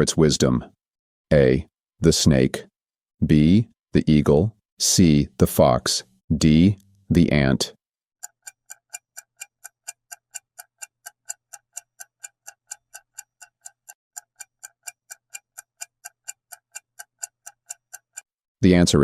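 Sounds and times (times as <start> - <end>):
clock ticking: 8.2 - 18.4.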